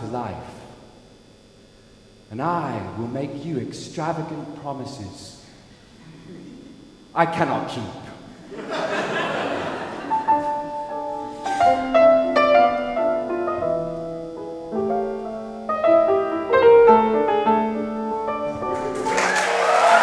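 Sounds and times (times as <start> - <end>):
solo piano melody: 10.1 - 19.2
applause: 19.0 - 20.0.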